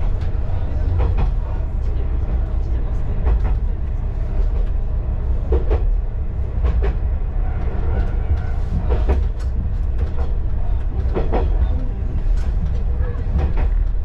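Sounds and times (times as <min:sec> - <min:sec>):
railcar engine drone: 0:00.0 - 0:14.0
wheel clacks on rail joints: 0:06.6 - 0:14.0.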